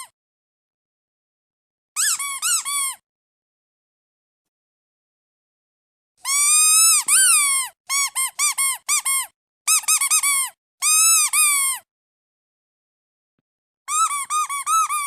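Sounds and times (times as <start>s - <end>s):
squeaky duck toy squeaks: 2.0s - 3.0s, 6.2s - 11.9s, 13.9s - 15.0s.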